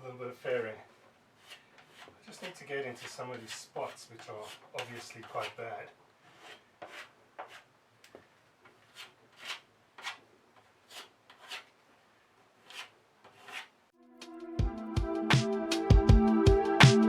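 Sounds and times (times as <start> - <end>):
spreader blade scraping: 1.4 - 5.7, 12.6 - 13.7
music: 14.0 - 17.0.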